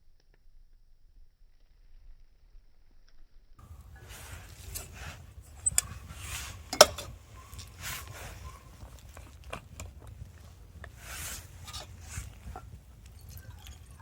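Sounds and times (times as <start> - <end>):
coffee gear clicking and clattering: 3.6 - 14.0.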